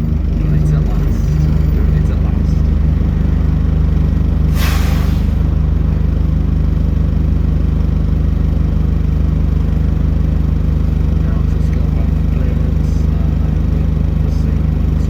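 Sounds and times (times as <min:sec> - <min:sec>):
bus engine droning: 0:00.0 - 0:15.0
air hiss: 0:04.5 - 0:05.4.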